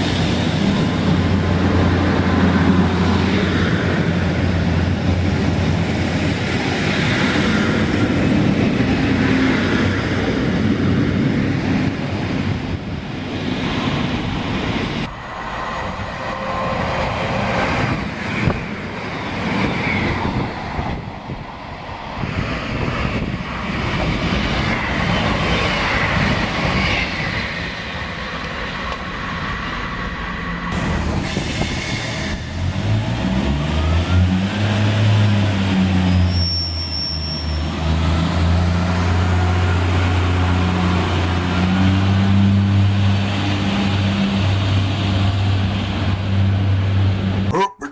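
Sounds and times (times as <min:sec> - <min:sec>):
train wheel and rail noise: 0:00.0 - 0:47.5
diesel engine: 0:30.0 - 0:47.9.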